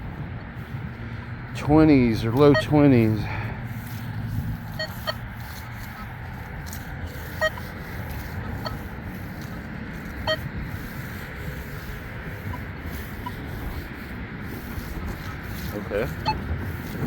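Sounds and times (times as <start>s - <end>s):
wind rumble on microphone: 0.0s - 17.0s
metal detector beeps: 2.2s - 3.3s, 3.9s - 6.1s, 6.7s - 13.9s, 14.5s - 17.0s.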